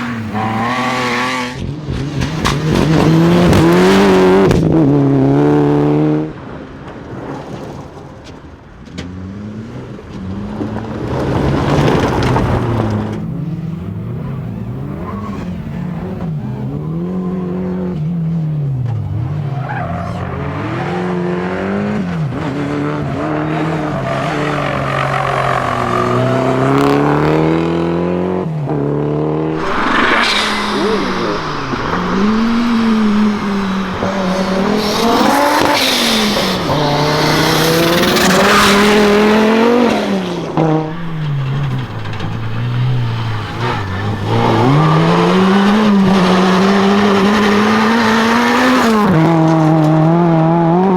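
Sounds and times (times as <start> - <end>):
car engine revving hard: 29.3 - 50.9
tyre squeal: 29.5 - 39.3, 40.8 - 47.8.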